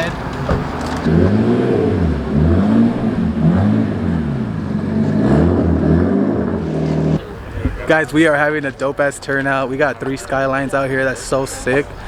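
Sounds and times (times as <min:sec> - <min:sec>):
car engine revving: 0:00.4 - 0:07.3.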